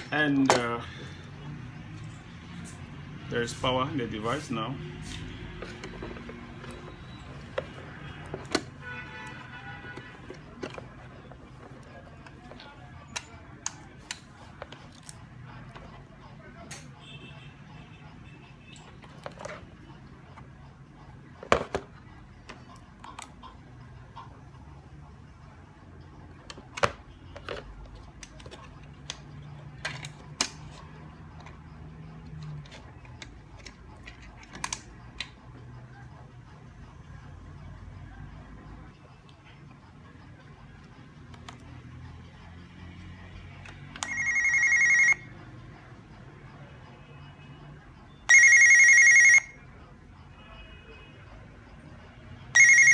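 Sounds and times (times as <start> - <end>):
warbling electronic door phone ring: 44.0 - 45.2, 48.3 - 49.5, 52.6 - 52.9.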